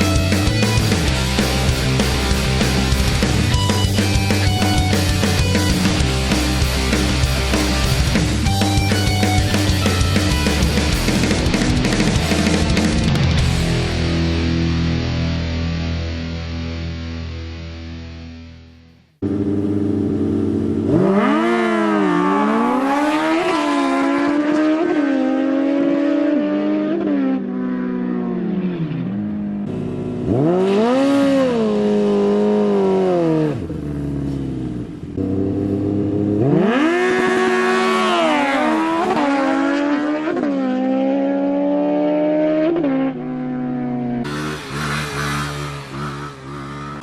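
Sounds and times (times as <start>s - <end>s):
motorbike engines revving: 19.2s - 47.0s.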